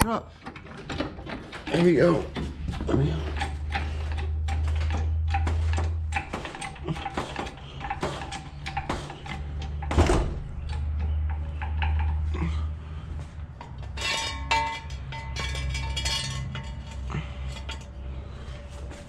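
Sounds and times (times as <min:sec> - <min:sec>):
floor jack clicking: 0:00.4 - 0:12.4.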